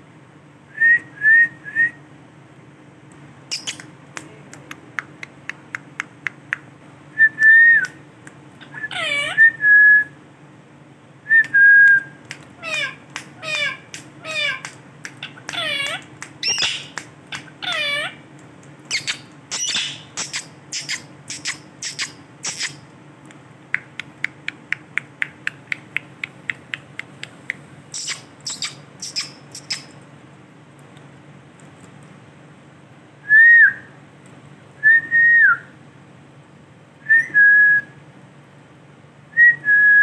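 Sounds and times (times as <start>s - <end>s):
parrot whistled calls: 8.6s - 9.8s, 12.6s - 18.2s, 18.9s - 22.8s, 27.9s - 29.9s.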